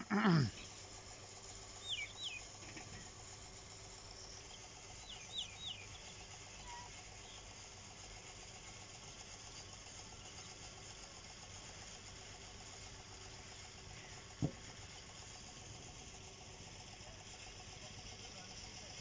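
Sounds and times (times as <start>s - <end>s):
faint steady hum: 0.0s - 19.0s
birds chirping: 1.8s - 2.5s, 4.1s - 7.5s.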